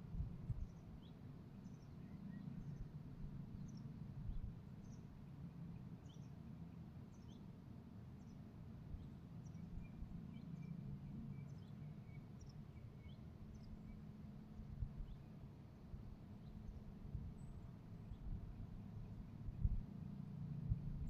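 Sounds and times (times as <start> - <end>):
low steady rumble: 0.0 - 7.3, 8.2 - 21.0
small birds chirping: 6.0 - 6.4, 9.0 - 14.1.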